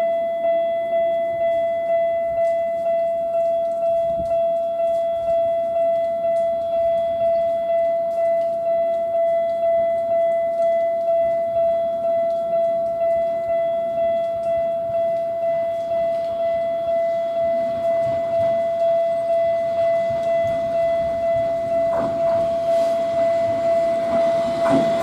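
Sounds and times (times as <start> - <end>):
level-crossing warning bell: 0.0 - 25.0
train rumble: 14.3 - 25.0.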